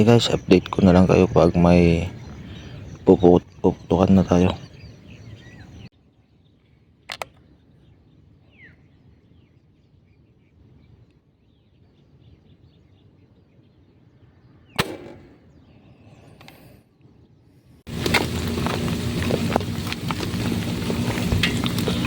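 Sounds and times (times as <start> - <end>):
faint bird chirps: 0.0 - 17.5
air rifle firing: 14.8 - 15.4.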